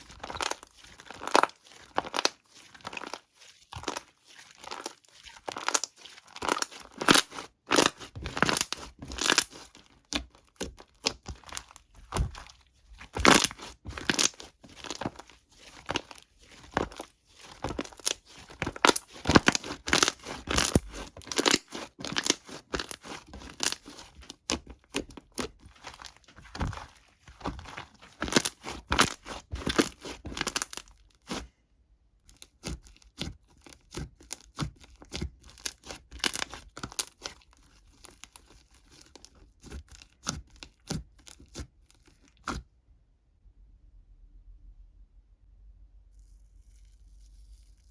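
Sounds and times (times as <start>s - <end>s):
thin material crinkling and tearing: 0.0s - 31.6s, 32.3s - 42.6s.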